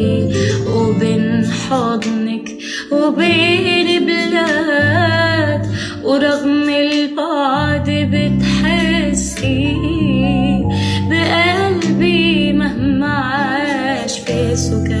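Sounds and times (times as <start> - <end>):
woman singing with vibrato: 0.0 - 15.0
low instrumental chords: 7.6 - 15.0.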